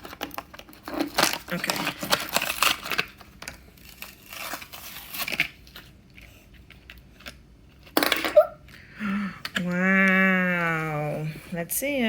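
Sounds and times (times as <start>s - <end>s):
packaging ripping and crinkling: 0.0s - 8.1s.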